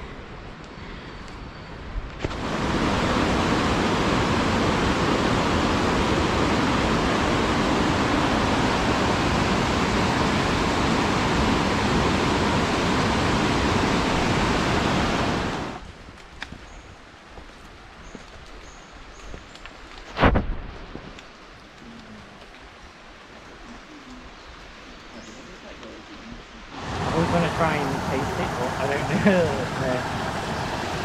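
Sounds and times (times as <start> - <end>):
flowing water rushing: 2.2 - 15.8, 23.2 - 31.0.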